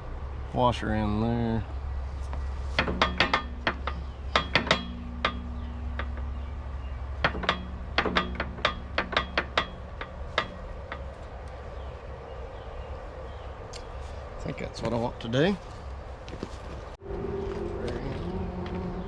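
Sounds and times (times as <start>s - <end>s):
hammer striking metal pin: 2.8s - 6.5s, 7.2s - 11.2s.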